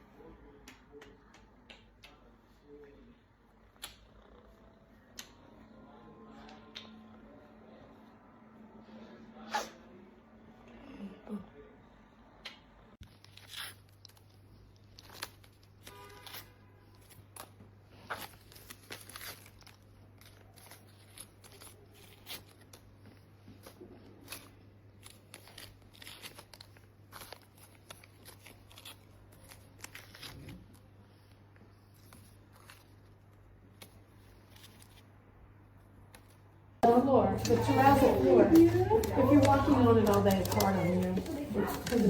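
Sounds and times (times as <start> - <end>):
crunching and crinkling clicks: 12.4 - 35.1, 37.3 - 42.0.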